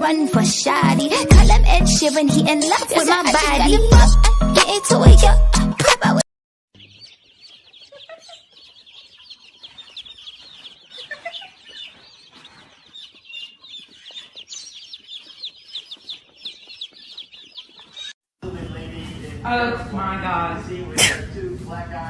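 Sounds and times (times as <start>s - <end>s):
small birds chirping: 6.8s - 18.2s.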